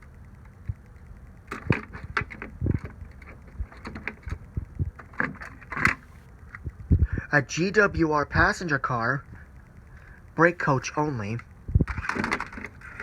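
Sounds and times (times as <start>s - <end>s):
plastic clicks and knocks: 1.5s - 6.7s, 11.8s - 13.0s.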